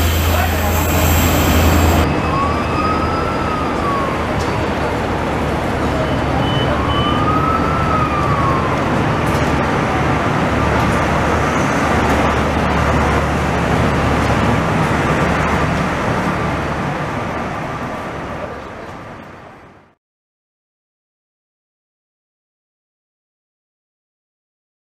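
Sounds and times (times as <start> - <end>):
train wheels rumbling on rail: 0.0 - 2.2, 8.4 - 19.9
brief whine: 0.0 - 3.4
low drone: 0.0 - 6.0.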